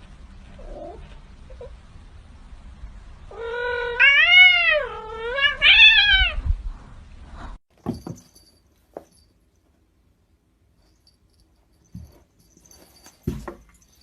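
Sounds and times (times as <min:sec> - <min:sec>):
cat yowling: 0:03.3 - 0:06.4.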